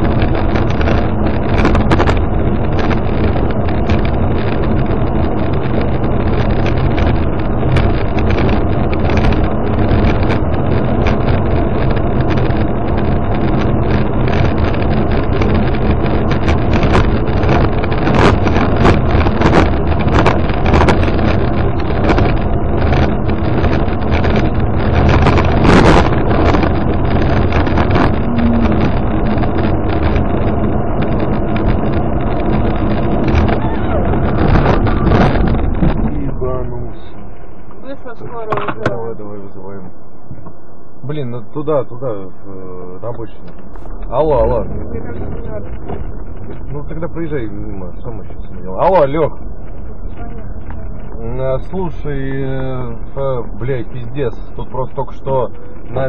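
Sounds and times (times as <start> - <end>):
knocks and rattles: 0.0 - 37.2
car interior road noise: 0.0 - 56.0.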